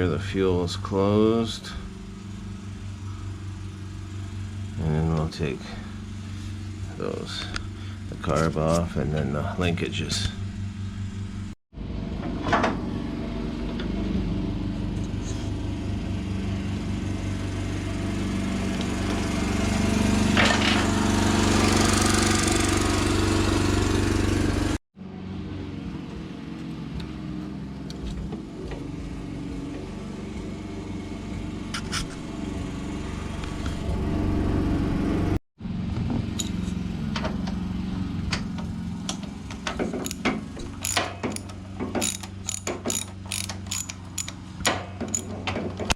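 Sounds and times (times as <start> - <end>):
low mechanical hum: 0.0 - 45.9
hand tools clicking: 39.6 - 45.3
ratchet wrench clicks: 40.0 - 45.3.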